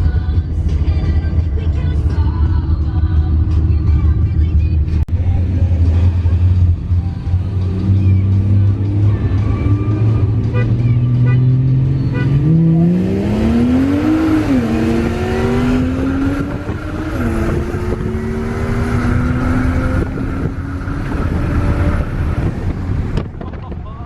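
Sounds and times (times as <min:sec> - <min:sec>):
car engine accelerating hard: 0:05.1 - 0:23.5.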